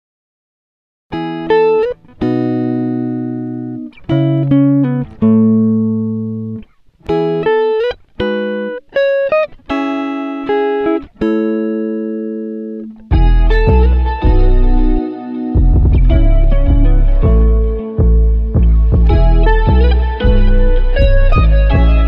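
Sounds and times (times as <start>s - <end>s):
plucked guitar notes: 1.1s - 22.0s.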